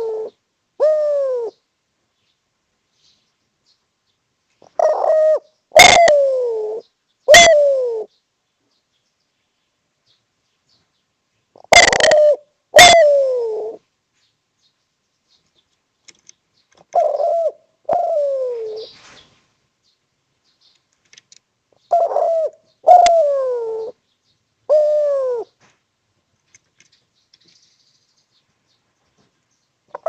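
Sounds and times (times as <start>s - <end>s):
dove cooing: 0.0s - 1.7s, 4.6s - 8.1s, 11.6s - 13.9s, 16.8s - 19.2s, 21.9s - 24.0s, 24.7s - 25.7s.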